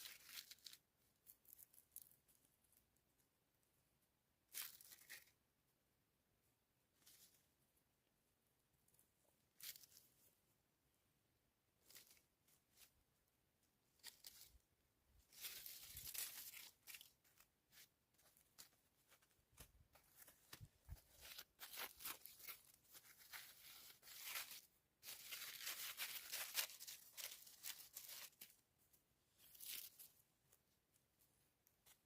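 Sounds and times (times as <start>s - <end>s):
rustling and tearing: 0.0s - 2.4s, 4.5s - 5.4s, 11.8s - 13.0s, 15.2s - 28.6s, 29.3s - 30.6s.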